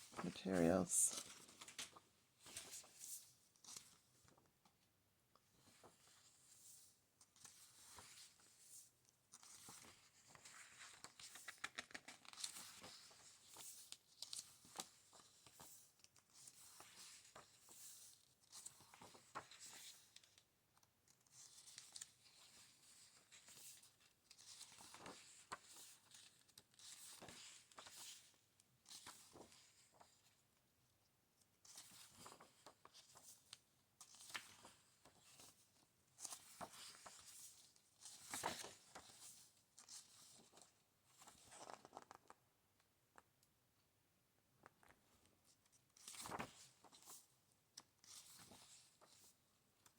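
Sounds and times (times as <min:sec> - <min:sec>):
book pages turning: 0:09.4 - 0:15.6, 0:36.2 - 0:40.6, 0:41.2 - 0:42.4, 0:46.0 - 0:47.2.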